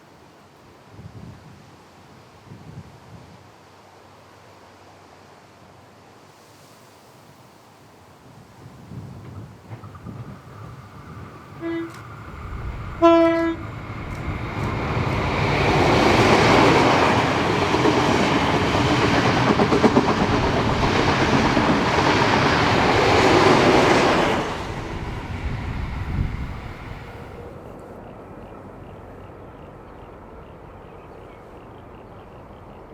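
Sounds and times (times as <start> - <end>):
train horn: 11.6 - 12.1, 12.9 - 13.8
train wheels clattering: 13.6 - 24.6.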